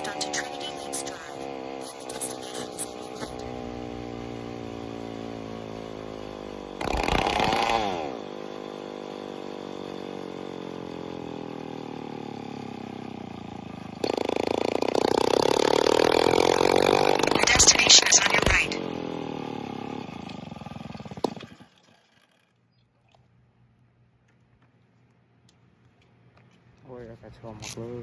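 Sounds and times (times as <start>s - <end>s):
engine throttle revving: 0.0s - 21.6s
two-stroke engine idling: 0.0s - 22.5s.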